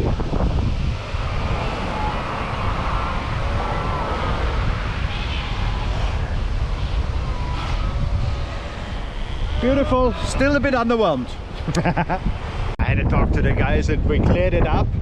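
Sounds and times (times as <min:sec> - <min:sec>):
surf washing: 0:00.0 - 0:13.0
wind buffeting microphone: 0:00.0 - 0:15.0
faint wavering calls: 0:01.0 - 0:11.5.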